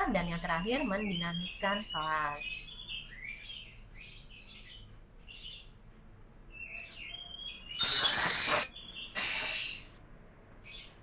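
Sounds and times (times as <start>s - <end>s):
small birds chirping: 0.0s - 5.8s, 6.5s - 10.0s
loud rasping hiss bursts: 9.2s - 10.0s.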